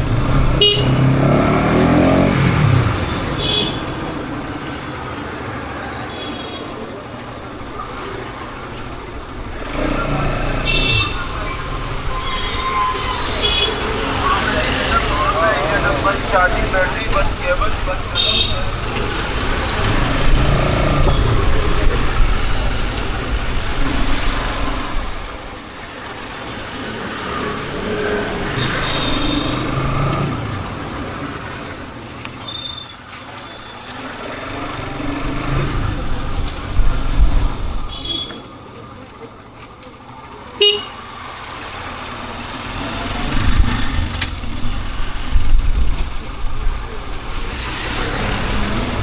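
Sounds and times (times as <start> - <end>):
motorcycle engine revving: 0.0 - 3.4, 19.2 - 22.7
horn toots: 0.5 - 2.3, 40.6 - 40.9.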